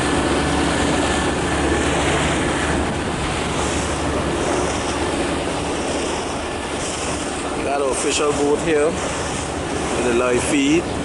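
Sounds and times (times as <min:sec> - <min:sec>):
boat engine drone: 0:00.0 - 0:11.0
water noise from boat: 0:00.0 - 0:11.0
wind across microphone: 0:00.0 - 0:11.0.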